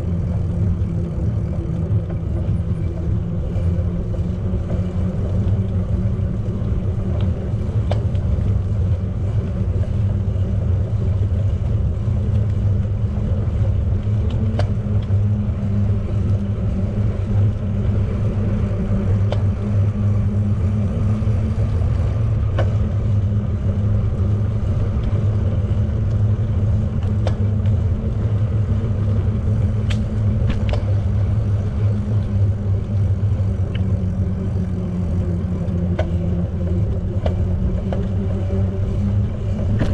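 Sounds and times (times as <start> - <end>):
bicycle rumble: 0.0 - 39.9
faint sharp clicks: 29.8 - 30.9.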